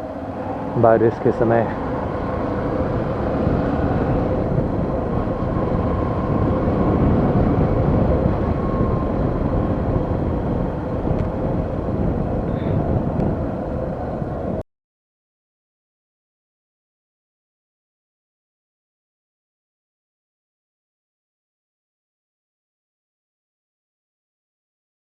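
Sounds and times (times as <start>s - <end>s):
road noise: 0.0s - 14.6s
vehicle engine running: 0.0s - 14.6s.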